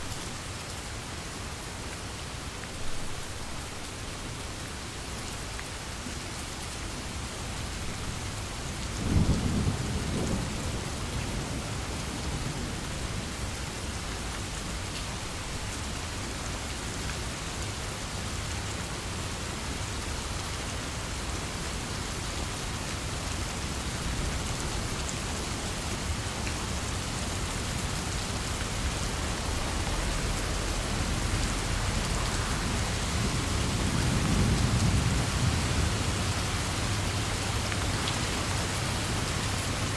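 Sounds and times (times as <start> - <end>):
heavy rain: 0.0 - 39.9
thunder rumbling: 27.0 - 39.9.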